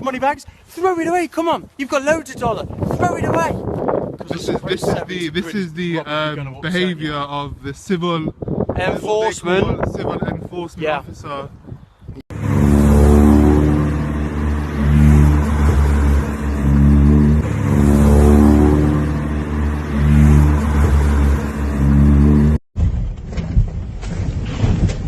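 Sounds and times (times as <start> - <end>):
car engine revving: 12.3 - 22.6.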